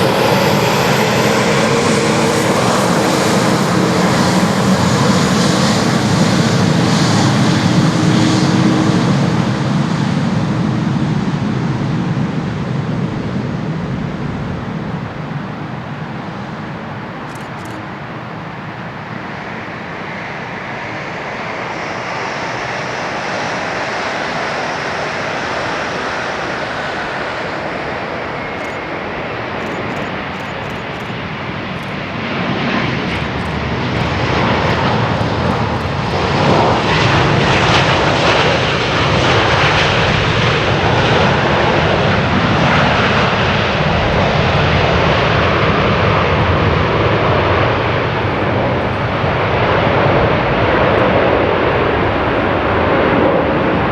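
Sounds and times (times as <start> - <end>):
jet engine rushing noise: 24.8 - 40.6.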